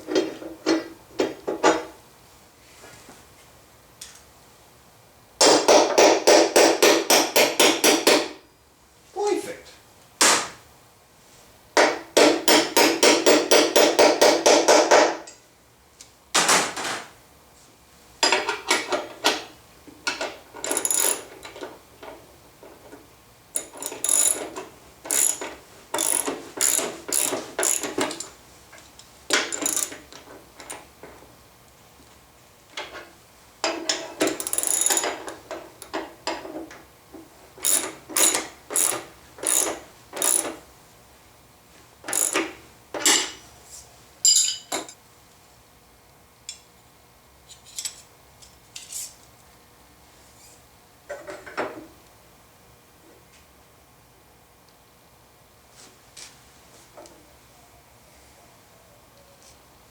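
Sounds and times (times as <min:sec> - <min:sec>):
socket ratchet clicking: 0:20.7 - 0:21.3, 0:23.6 - 0:24.5, 0:25.1 - 0:28.3, 0:29.4 - 0:30.0, 0:34.2 - 0:35.1, 0:37.6 - 0:40.6, 0:42.1 - 0:42.5.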